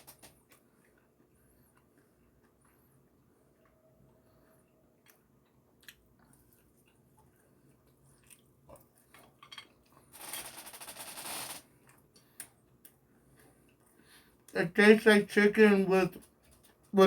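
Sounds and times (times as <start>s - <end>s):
chewing crunchy food: 0.0s - 3.8s, 4.6s - 10.1s.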